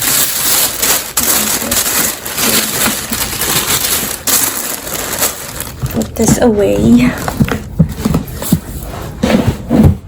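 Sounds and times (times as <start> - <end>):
paper packaging crinkling: 0.0 - 7.7.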